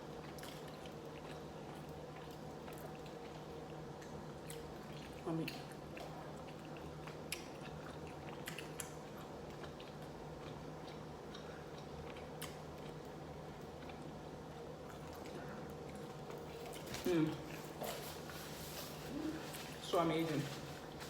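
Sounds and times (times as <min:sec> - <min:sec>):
chewing and mouth sounds: 0:00.0 - 0:21.0
steady low hum: 0:00.0 - 0:21.0.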